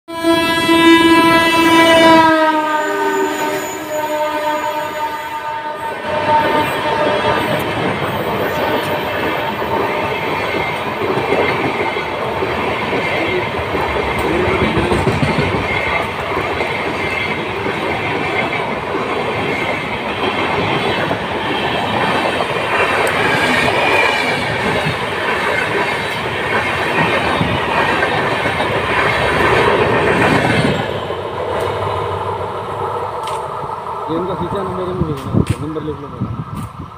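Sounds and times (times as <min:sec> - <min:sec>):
train coaches rumbling past: 0:00.1 - 0:36.9.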